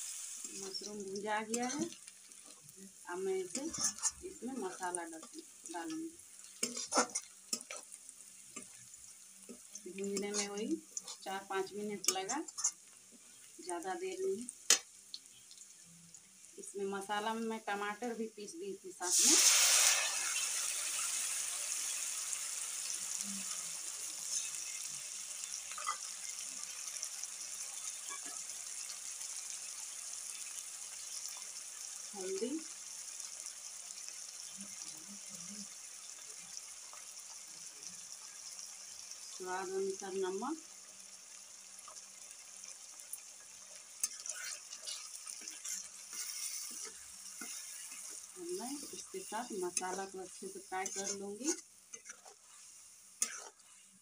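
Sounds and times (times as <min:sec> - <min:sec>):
paste sizzling in hot oil: 0:00.0 - 0:54.0
spatula scraping a pan: 0:01.4 - 0:02.6, 0:03.5 - 0:05.4, 0:06.4 - 0:08.8, 0:09.5 - 0:11.3, 0:12.0 - 0:12.9, 0:25.7 - 0:26.4, 0:27.9 - 0:28.5, 0:44.0 - 0:54.0.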